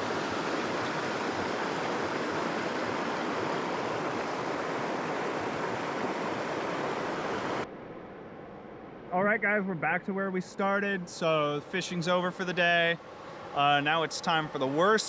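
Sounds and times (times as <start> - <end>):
creek rushing over rocks: 0.0 - 7.7.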